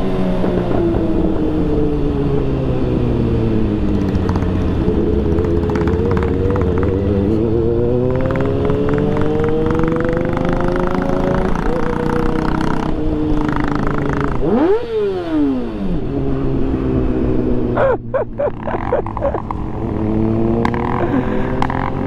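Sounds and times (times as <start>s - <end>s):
motorcycle engine revving: 0.0s - 22.0s
exhaust pops: 3.8s - 7.4s.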